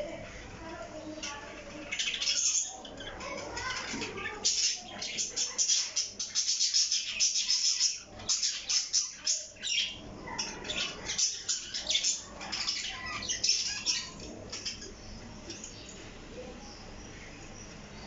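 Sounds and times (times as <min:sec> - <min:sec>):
parrot chirping and squawking: 0:01.2 - 0:15.1.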